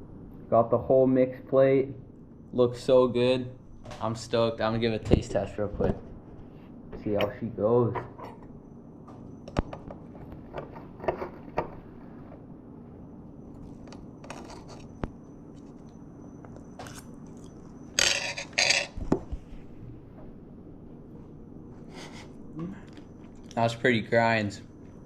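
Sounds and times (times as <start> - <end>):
crunchy bites and chewing: 15.6 - 17.9
cutlery scraping on a plate: 18.0 - 19.0.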